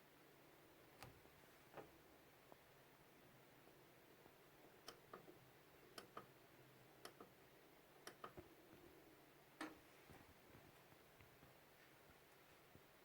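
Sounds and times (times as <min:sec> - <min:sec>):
faint mechanical clicks: 0:04.6 - 0:06.4, 0:07.0 - 0:07.4, 0:08.0 - 0:08.9.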